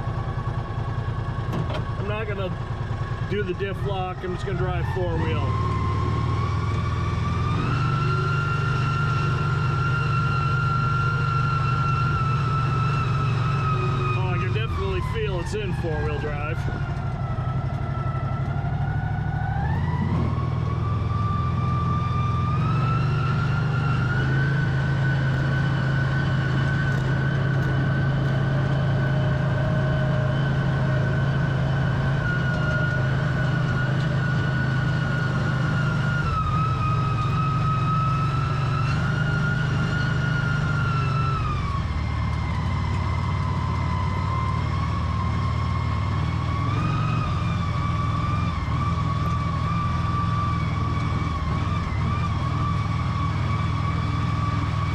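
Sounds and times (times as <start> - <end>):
high drivetrain whine: 0.0 - 54.9
utility vehicle engine humming: 0.0 - 54.9.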